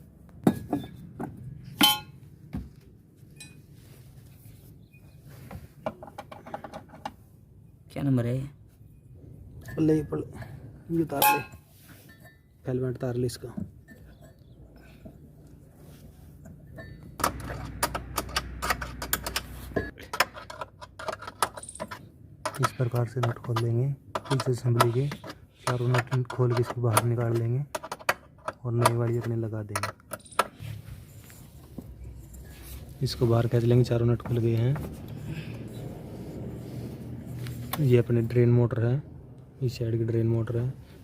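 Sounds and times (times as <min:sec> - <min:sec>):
wrench clinking against metal nuts: 0:01.8 - 0:02.2, 0:16.7 - 0:27.9, 0:28.5 - 0:30.6.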